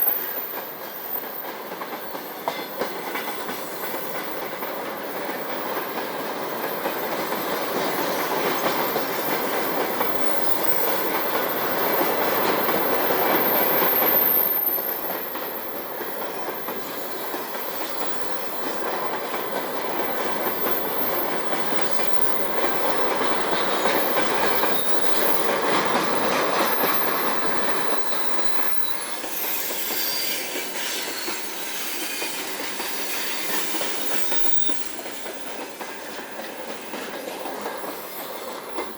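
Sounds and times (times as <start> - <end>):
train wheels clattering on rails: 0.0 - 38.9
high-pitched wheel squeals: 26.6 - 35.4.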